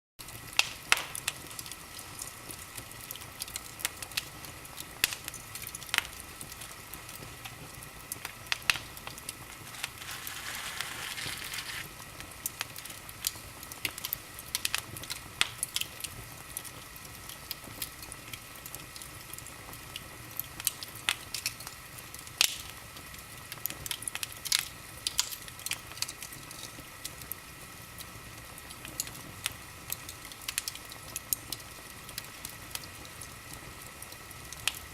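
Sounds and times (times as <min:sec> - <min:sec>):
wood fire crackling: 0:00.3 - 0:34.9
fire hiss: 0:08.2 - 0:15.6.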